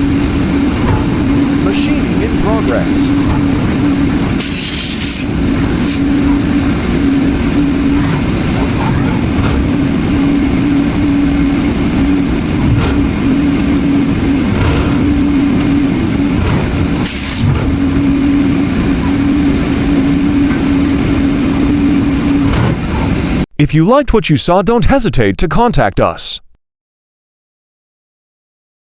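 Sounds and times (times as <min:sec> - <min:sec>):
lathe machine drone: 0:00.0 - 0:23.4
short bursts of hiss: 0:04.4 - 0:06.0.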